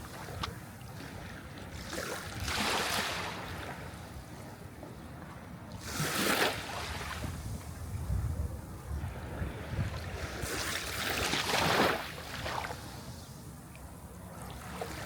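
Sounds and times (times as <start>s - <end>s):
sea waves breaking: 0.0s - 4.5s, 5.8s - 7.8s, 9.0s - 13.3s.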